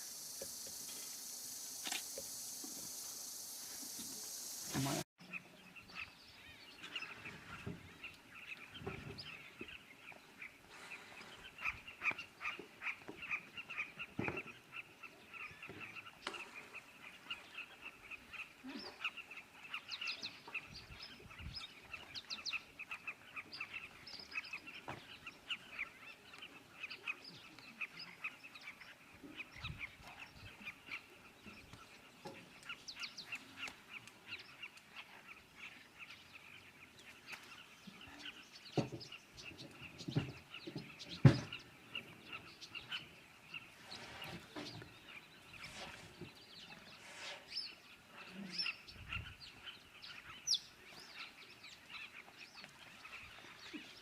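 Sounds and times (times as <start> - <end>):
chorus of birds calling: 4.3 - 54.0.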